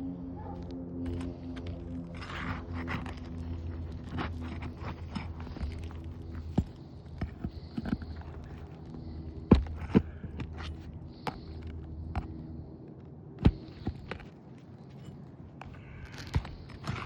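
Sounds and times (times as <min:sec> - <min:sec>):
steady low hum: 0:00.0 - 0:17.0
tools tapping on shingle roof: 0:03.9 - 0:12.6, 0:13.4 - 0:14.4.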